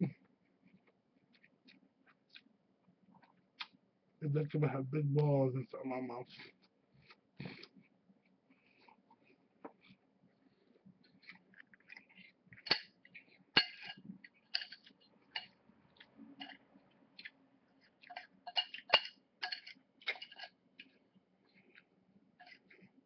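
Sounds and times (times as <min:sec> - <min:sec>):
chewing: 0:00.2 - 0:03.8, 0:06.4 - 0:23.0
cutlery clinking on a plate: 0:13.6 - 0:15.6, 0:18.0 - 0:20.6.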